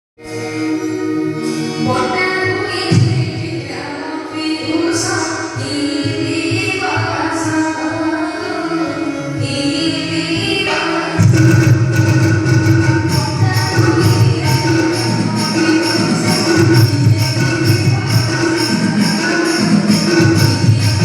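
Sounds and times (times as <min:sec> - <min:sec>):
music with singing over loudspeakers: 0:00.2 - 0:21.0.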